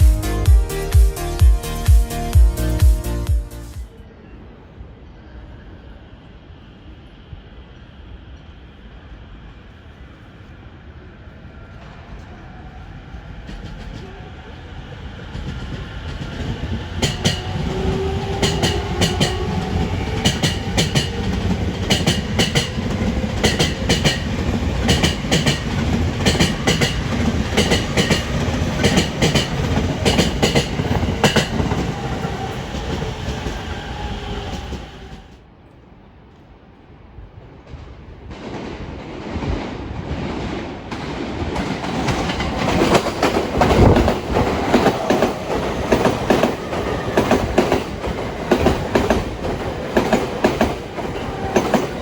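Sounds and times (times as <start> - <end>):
train rumble: 0.0 - 52.0
train wheels clicking on rail joints: 15.3 - 35.4, 40.9 - 52.0.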